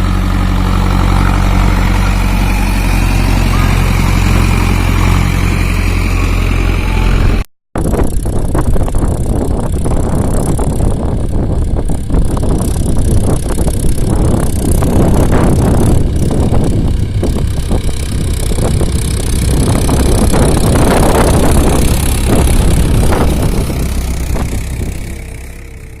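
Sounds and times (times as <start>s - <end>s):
wind on microphone: 0.0s - 25.9s
tractor engine running: 0.0s - 26.0s.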